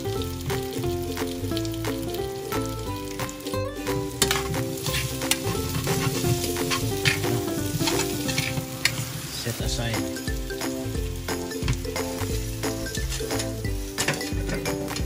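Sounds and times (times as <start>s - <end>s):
potatoes sizzling in a skillet: 0.0s - 15.0s.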